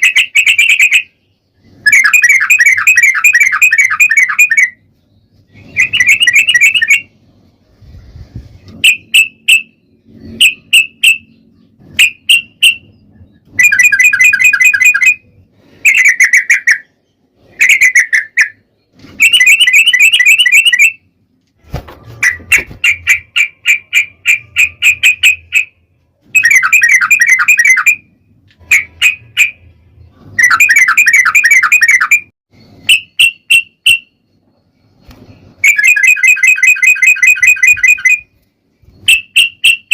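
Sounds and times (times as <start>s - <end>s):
bulbul bubbly chattering song: 13.5s - 16.9s, 22.8s - 28.1s.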